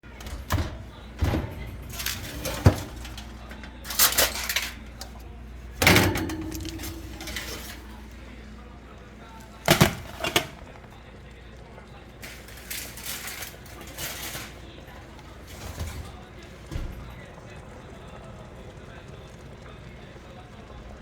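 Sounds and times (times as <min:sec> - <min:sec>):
dishes and cutlery clinking: 0:00.1 - 0:08.2, 0:09.6 - 0:10.6.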